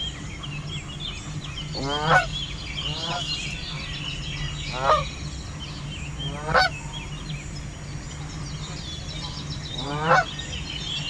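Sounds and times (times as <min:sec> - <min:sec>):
geese honking: 0:01.7 - 0:03.8, 0:04.7 - 0:05.0, 0:06.3 - 0:06.7, 0:09.2 - 0:10.4.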